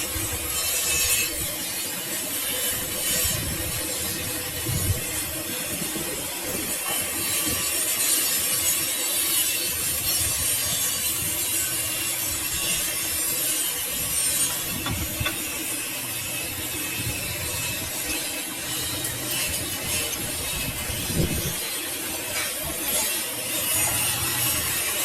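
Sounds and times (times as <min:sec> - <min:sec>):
metal machining scraping and grinding: 0:00.0 - 0:25.0.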